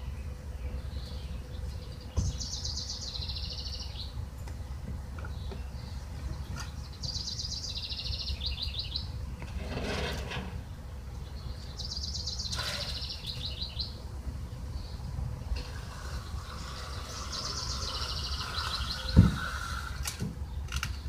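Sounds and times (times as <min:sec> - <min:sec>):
songbird trilling: 0:00.1 - 0:04.1, 0:05.3 - 0:09.2, 0:11.2 - 0:14.0, 0:15.7 - 0:20.0.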